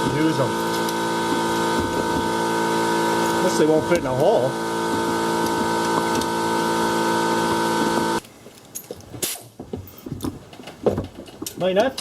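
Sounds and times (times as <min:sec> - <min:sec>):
pneumatic air tool whining: 0:00.0 - 0:08.2.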